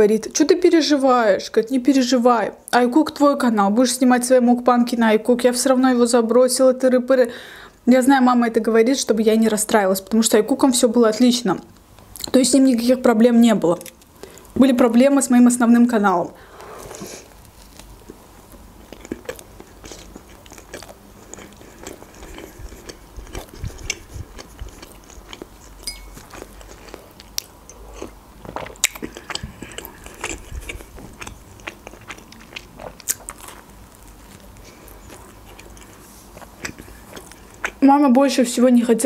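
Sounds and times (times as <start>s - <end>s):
chewing with crackles: 16.9s - 37.8s.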